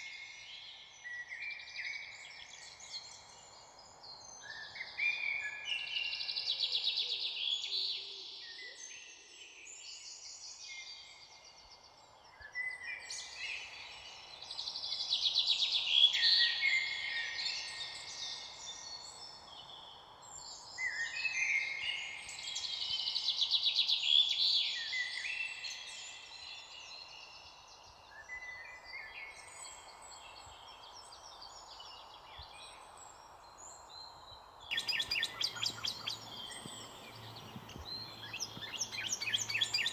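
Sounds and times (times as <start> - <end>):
faint background hiss: 0.0 - 39.9
songbirds singing trills: 9.9 - 39.9.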